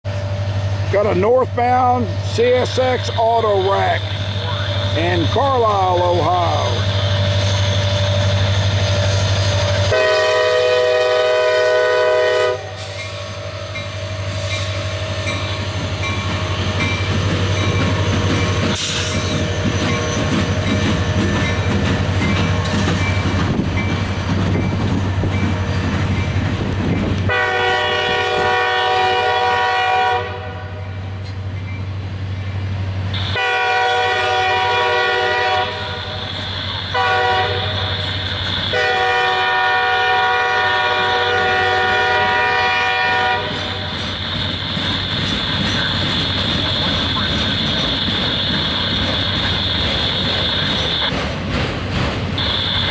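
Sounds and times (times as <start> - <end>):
diesel engine humming: 0.1 - 29.7
locomotive air horn blasts: 9.8 - 13.0, 27.3 - 30.8, 33.1 - 43.9, 52.4 - 52.9
wheels clattering over rail joints: 13.8 - 27.3, 43.6 - 52.5.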